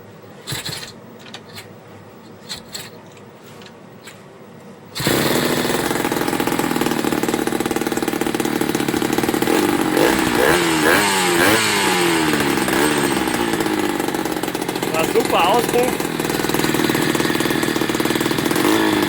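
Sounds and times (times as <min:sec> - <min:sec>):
moped engine starting and revving: 0:00.4 - 0:01.0, 0:05.0 - 0:19.0.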